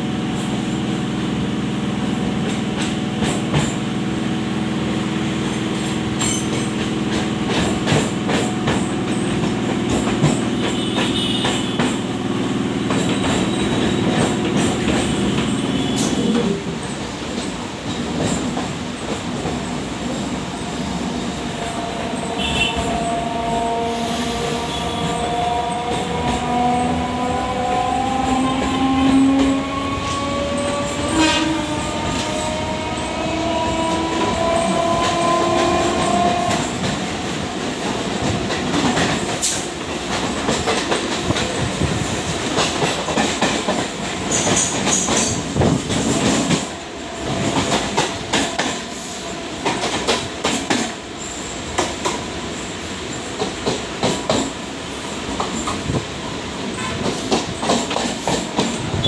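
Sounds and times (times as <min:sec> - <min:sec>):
train rumbling on rails: 0:00.0 - 0:59.0
wheels clacking over rail joints: 0:05.6 - 0:23.4, 0:25.0 - 0:49.0, 0:56.7 - 0:59.0.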